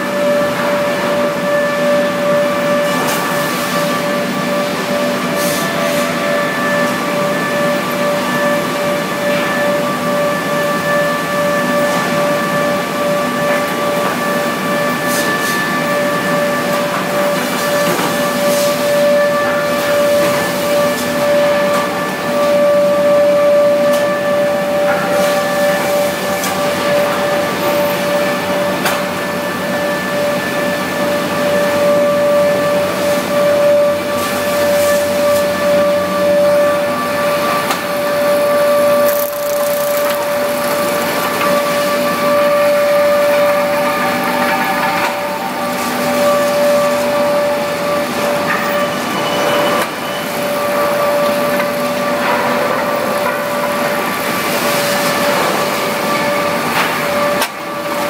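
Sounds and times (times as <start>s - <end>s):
woodworking planer whining: 0.0s - 58.0s.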